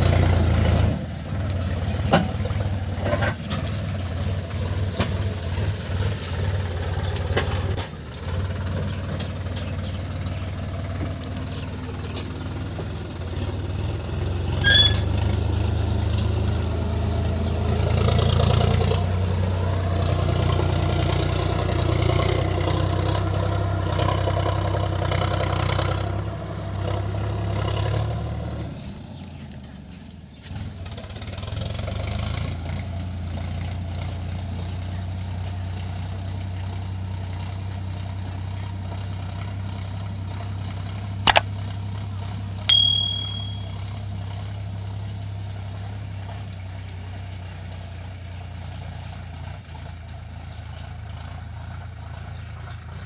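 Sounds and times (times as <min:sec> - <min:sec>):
tractor diesel engine running: 0:00.0 - 0:53.0
brief high ting: 0:42.7 - 0:43.8.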